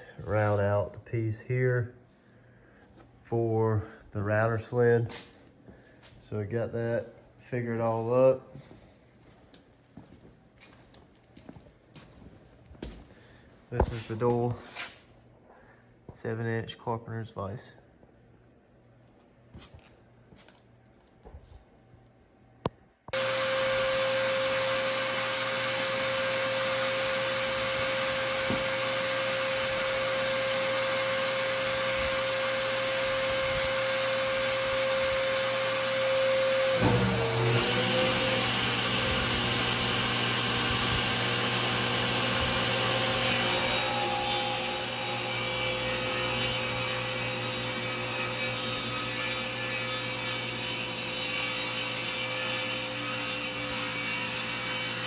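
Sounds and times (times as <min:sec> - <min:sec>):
power tool cutting wood: 0:23.2 - 0:55.0.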